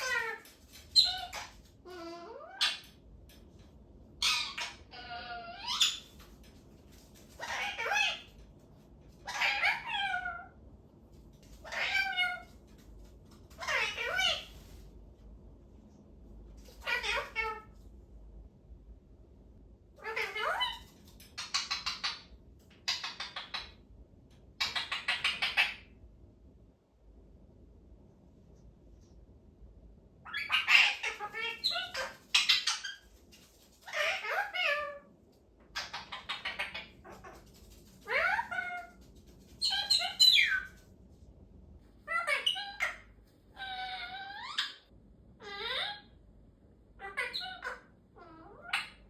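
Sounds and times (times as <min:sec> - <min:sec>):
parrot making sliding calls: 0:35.8 - 0:39.0, 0:39.6 - 0:40.8.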